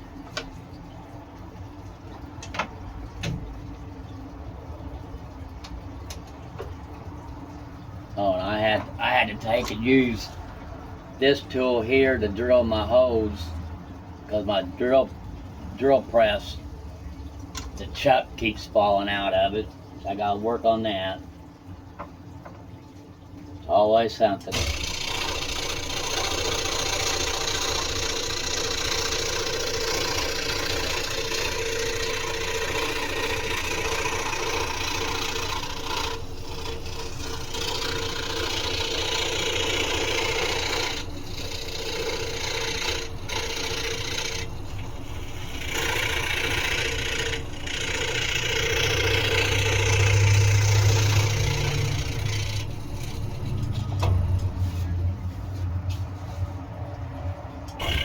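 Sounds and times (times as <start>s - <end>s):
scroll saw cutting wood: 8.2s - 10.4s, 24.5s - 54.9s, 57.7s - 58.0s
low hum: 24.5s - 58.0s.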